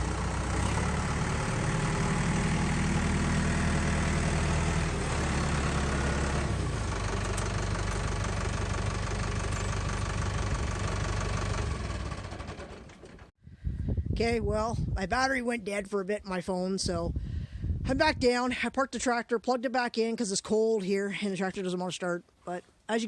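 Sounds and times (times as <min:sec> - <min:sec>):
tractor engine running: 0:00.0 - 0:13.3.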